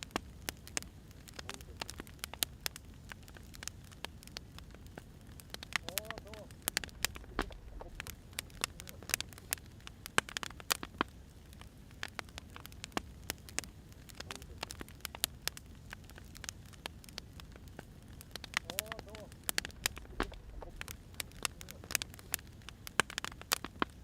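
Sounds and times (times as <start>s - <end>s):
wood fire crackling and popping: 0.0s - 24.0s
low steady rumble: 4.6s - 10.1s, 15.6s - 22.8s.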